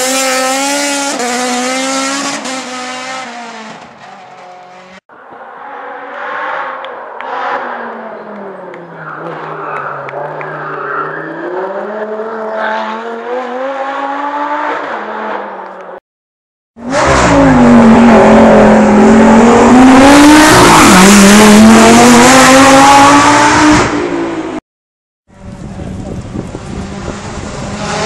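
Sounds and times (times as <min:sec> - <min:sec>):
race car engine revving high: 0:00.0 - 0:05.0, 0:16.8 - 0:24.6.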